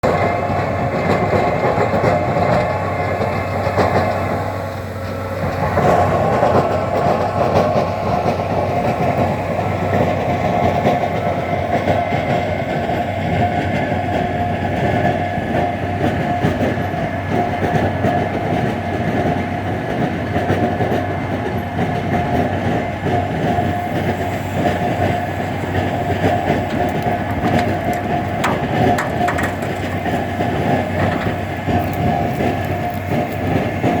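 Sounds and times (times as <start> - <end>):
steady whine: 0.0 - 14.5, 23.1 - 34.0
tractor engine running: 0.0 - 34.0
rattling clattering: 24.1 - 34.0.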